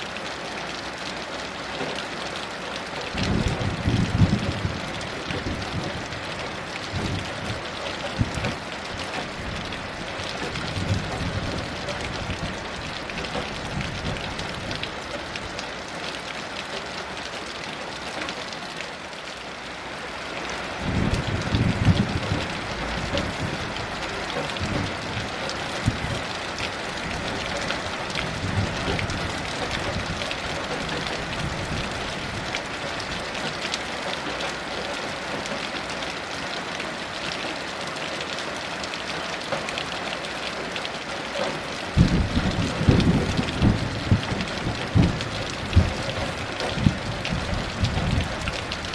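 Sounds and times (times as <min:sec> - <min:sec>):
heavy rain: 0:00.0 - 0:48.9
thunder rumbling: 0:03.2 - 0:14.9, 0:20.8 - 0:33.2, 0:41.9 - 0:48.9.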